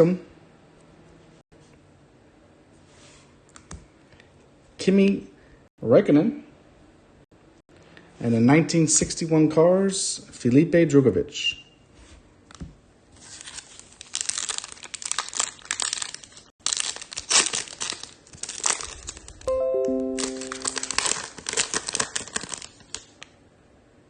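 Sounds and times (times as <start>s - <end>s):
foil wrapper tearing and crinkling: 13.2s - 19.5s, 20.2s - 23.2s
descending chime tones: 19.5s - 21.2s.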